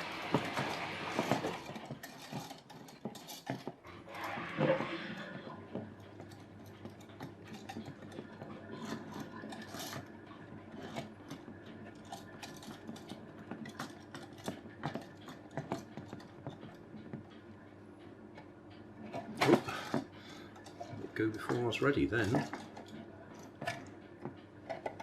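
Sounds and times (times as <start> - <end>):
plastic parts clicking and rubbing: 0.3 - 3.8.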